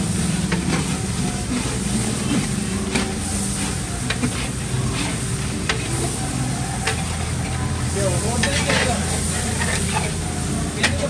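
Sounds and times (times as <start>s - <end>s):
chicken sizzling in hot oil: 0.0s - 11.0s
metal ladle scraping pot: 8.4s - 10.2s.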